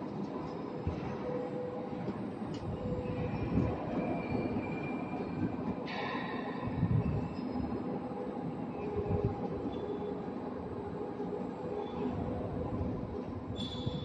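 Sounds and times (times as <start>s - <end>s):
faint thin squealing tones: 13.6s - 14.0s.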